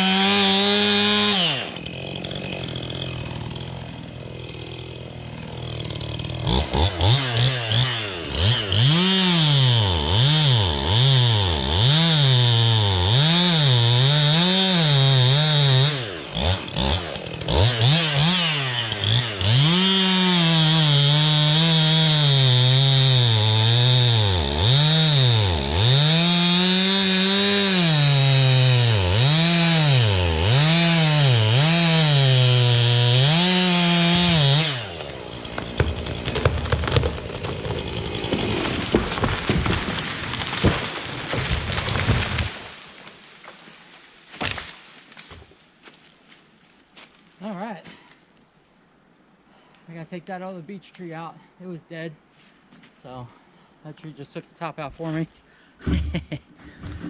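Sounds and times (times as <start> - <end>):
chainsaw revving: 0.0 - 42.8.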